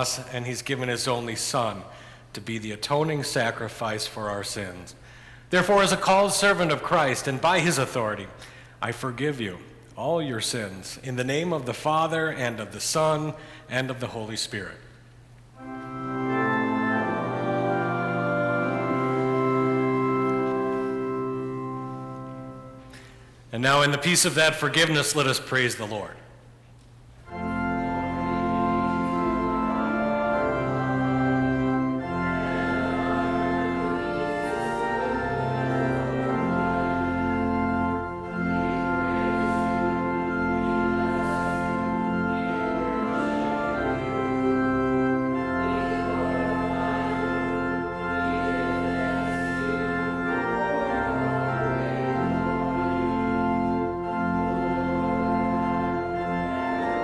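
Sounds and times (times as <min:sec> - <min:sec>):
organ playing a hymn: 0:00.0 - 0:14.8, 0:15.4 - 0:26.2, 0:27.2 - 0:57.0.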